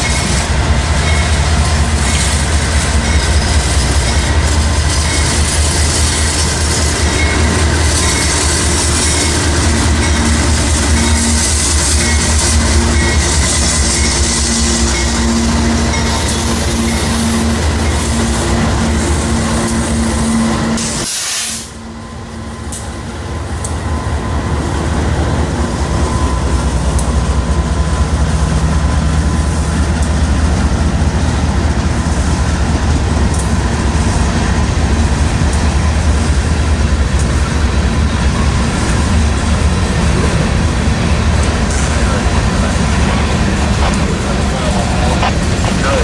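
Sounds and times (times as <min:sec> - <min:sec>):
diesel locomotive engine: 0:00.0 - 0:46.0
train cars rumbling over rails: 0:00.0 - 0:46.0
faint rail clicks: 0:26.9 - 0:27.2, 0:33.3 - 0:33.6, 0:37.1 - 0:37.4, 0:42.9 - 0:46.0.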